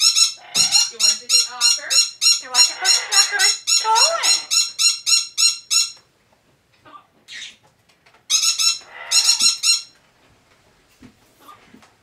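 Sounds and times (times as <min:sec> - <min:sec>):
parrot squeaky notes: 0:00.0 - 0:06.0.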